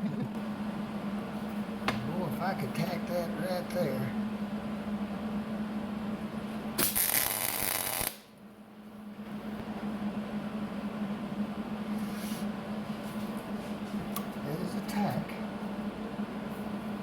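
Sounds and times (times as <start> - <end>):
electrical hum: 0.0 - 17.0
welding arc crackling: 6.8 - 8.3.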